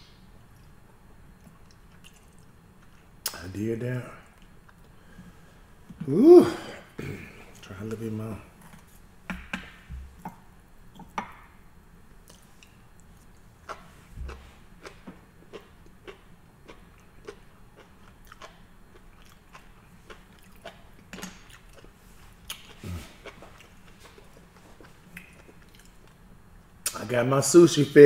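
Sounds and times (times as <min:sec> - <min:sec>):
person chewing food: 0:12.2 - 0:26.3.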